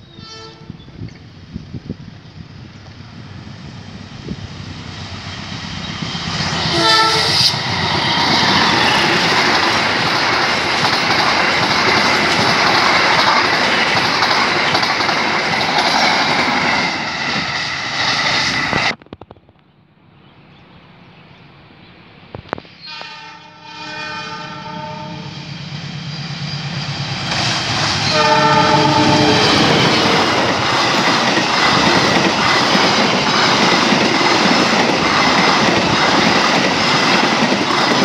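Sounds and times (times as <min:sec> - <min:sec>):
train coaches passing: 0:00.0 - 0:38.0
locomotive horn: 0:00.1 - 0:00.8, 0:06.7 - 0:07.6, 0:22.8 - 0:25.4, 0:28.0 - 0:30.2.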